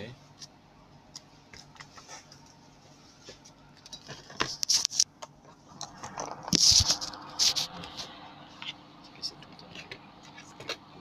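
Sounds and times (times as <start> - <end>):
sharp clicks and scrapes: 3.3 - 8.8.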